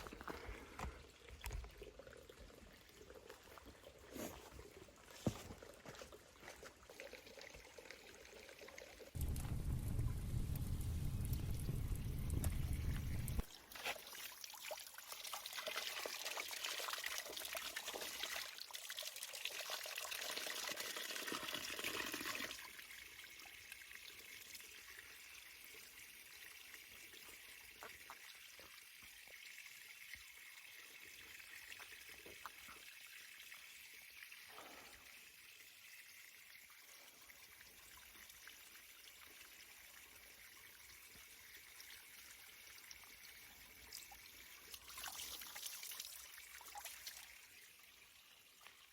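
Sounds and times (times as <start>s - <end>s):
spring water pouring: 5.6s - 48.9s.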